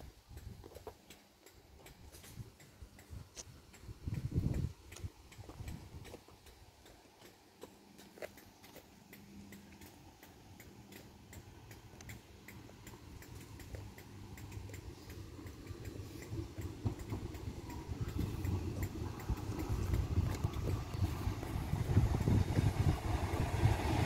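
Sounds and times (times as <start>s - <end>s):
faint ticking clicks: 0.0s - 23.8s
train rumble: 1.8s - 24.0s.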